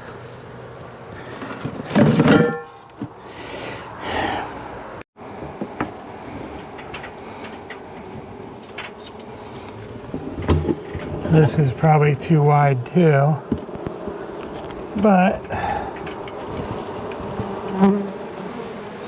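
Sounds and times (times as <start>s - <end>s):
bees buzzing: 5.6s - 19.0s.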